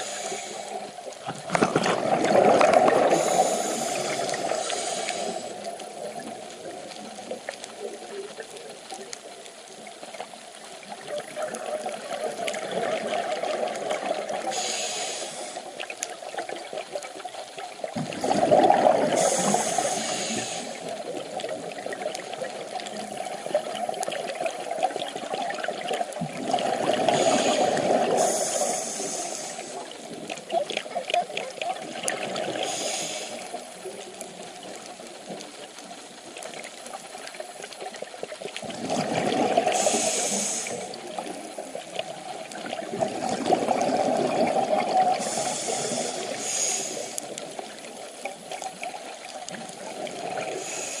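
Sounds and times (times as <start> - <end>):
regulator hiss: 0.0 - 1.1, 3.0 - 5.7, 14.4 - 15.8, 19.1 - 21.1, 27.0 - 30.1, 32.5 - 34.0, 39.7 - 41.2, 45.2 - 48.3, 50.4 - 51.0
exhaled air bubbling underwater: 0.0 - 51.0.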